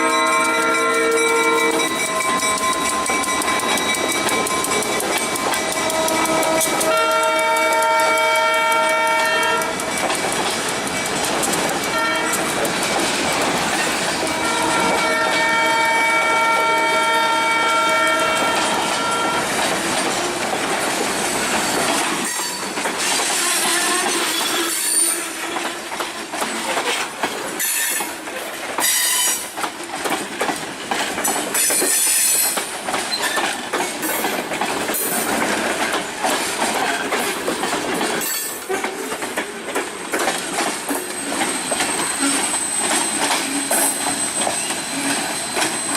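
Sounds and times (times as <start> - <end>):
train horn: 0.0 - 2.2, 5.8 - 9.8, 11.9 - 12.6, 14.2 - 19.6, 23.3 - 26.3, 28.8 - 29.4
wheels clicking over rail joints: 0.0 - 45.9
high wheel squeal: 40.9 - 45.9.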